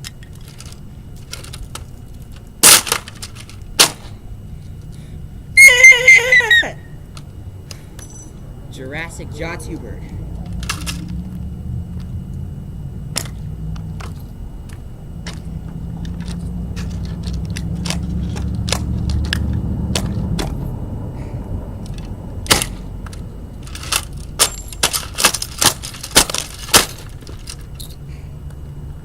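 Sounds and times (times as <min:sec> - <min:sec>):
low steady rumble: 0:00.0 - 0:29.0
toy dollhouse being smashed: 0:02.6 - 0:04.1, 0:23.6 - 0:27.6.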